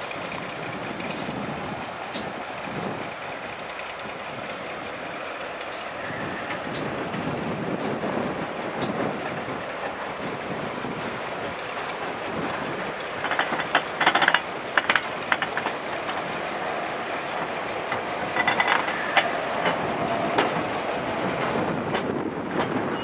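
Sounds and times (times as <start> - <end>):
train wheels rumbling on track: 0.0 - 23.0
metallic clicks and clanks: 13.2 - 16.2, 17.9 - 19.8.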